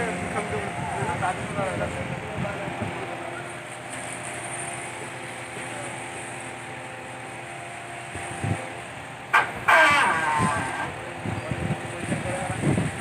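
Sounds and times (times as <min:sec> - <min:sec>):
crane engine running: 0:00.0 - 0:13.0.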